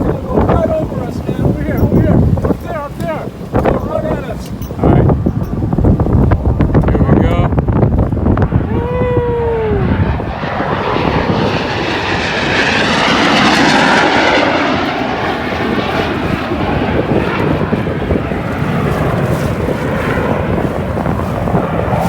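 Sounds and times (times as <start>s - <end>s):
aircraft engine roar: 0.0s - 22.0s.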